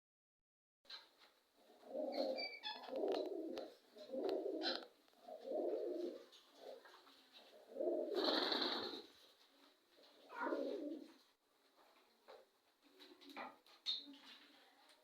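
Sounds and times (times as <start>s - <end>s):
bird cooing calls: 1.7s - 6.9s, 7.6s - 9.1s, 10.2s - 11.1s.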